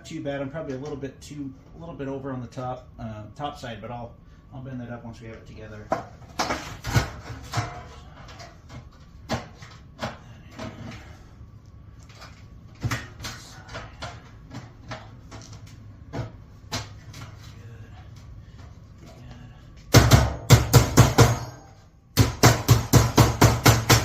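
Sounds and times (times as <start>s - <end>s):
metal duct clanks and knocks: 5.9s - 11.1s.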